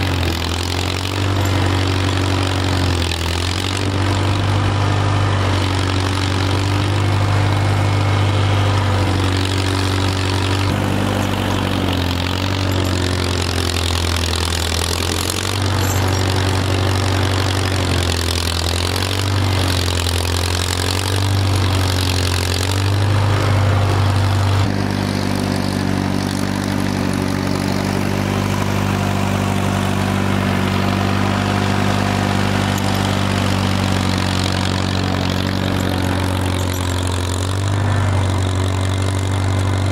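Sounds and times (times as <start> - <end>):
snow vehicle engine running: 0.0 - 39.9.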